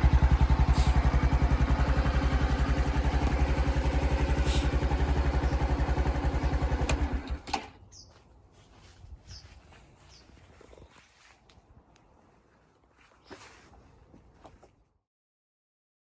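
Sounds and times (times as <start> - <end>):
motorcycle idling: 0.0 - 8.2.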